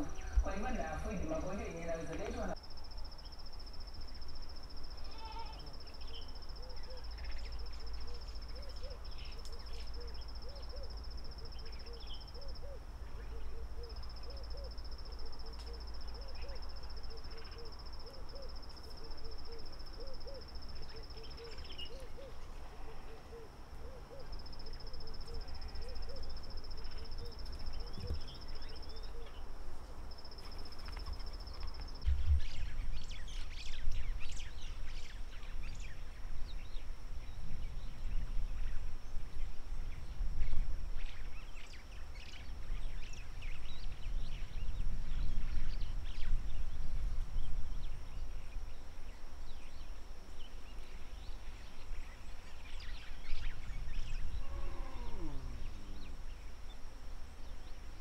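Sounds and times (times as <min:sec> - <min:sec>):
high insect trill: 0:00.0 - 0:23.6, 0:24.2 - 0:29.2, 0:30.0 - 0:36.8, 0:47.6 - 0:58.0
bird hooting softly: 0:03.8 - 0:32.1, 0:52.7 - 0:56.8.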